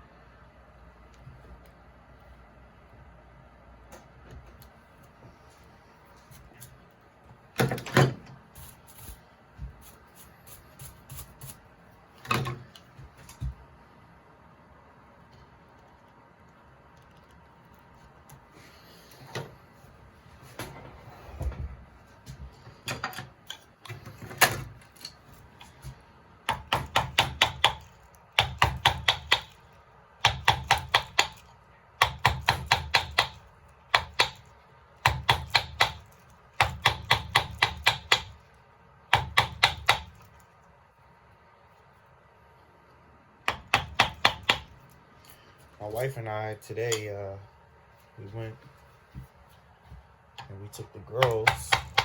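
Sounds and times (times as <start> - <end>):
carving tools knocking wood: 26.5 - 29.6, 30.2 - 38.4, 39.1 - 40.3, 43.4 - 44.7, 51.0 - 52.0.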